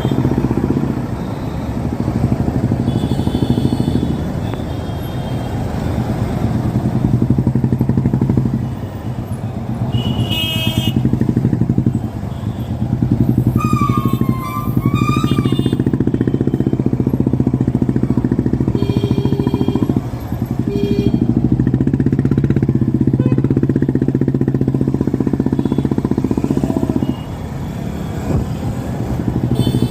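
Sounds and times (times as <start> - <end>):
motorcycle engine beating: 0.0 - 4.6, 5.7 - 29.9.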